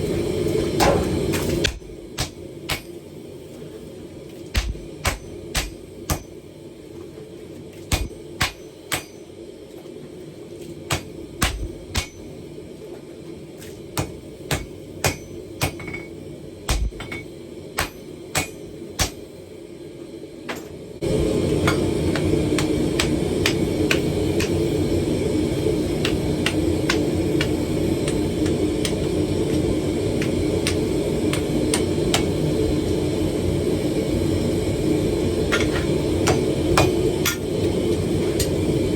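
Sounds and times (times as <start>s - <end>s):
low steady hum: 0.0s - 38.9s
hammer striking steel on anvil: 0.8s - 3.1s, 4.5s - 6.4s, 7.8s - 9.4s, 10.9s - 12.4s, 14.0s - 19.3s, 21.5s - 24.8s, 25.9s - 32.4s, 35.5s - 37.6s.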